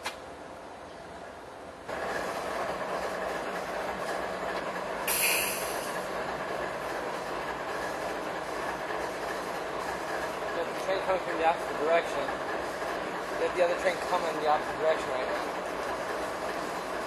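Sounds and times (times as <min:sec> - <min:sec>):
freight train rumbling: 0:00.0 - 0:17.0
brief high hiss: 0:05.0 - 0:06.0.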